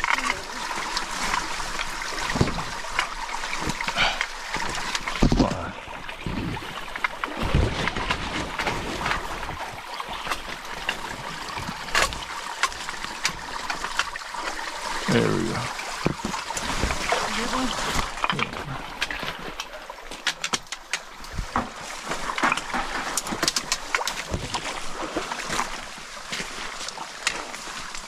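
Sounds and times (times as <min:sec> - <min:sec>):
people wading and splashing: 0:00.0 - 0:28.0
shallow stream running: 0:00.0 - 0:28.0.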